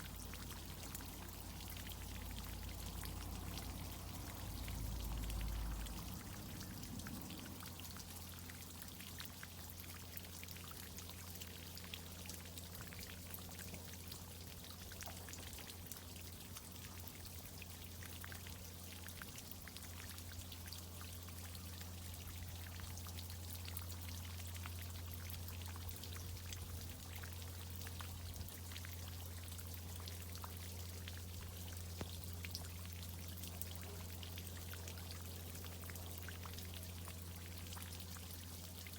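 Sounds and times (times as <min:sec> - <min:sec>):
steady low hum: 0:00.0 - 0:09.6
fine drips crackling: 0:00.0 - 0:38.9.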